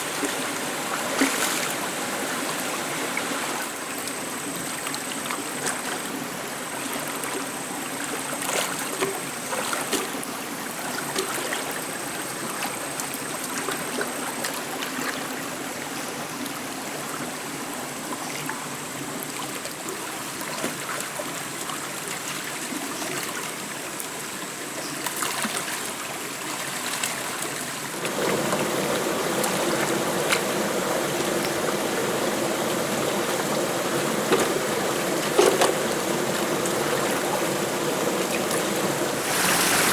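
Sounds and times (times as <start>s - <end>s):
stream water rushing: 0.0s - 3.9s, 25.8s - 39.9s.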